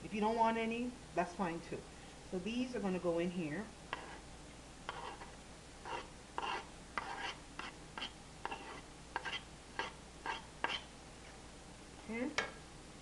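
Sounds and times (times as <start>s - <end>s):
utensil scraping in a pot: 3.9s - 4.3s, 4.9s - 10.9s.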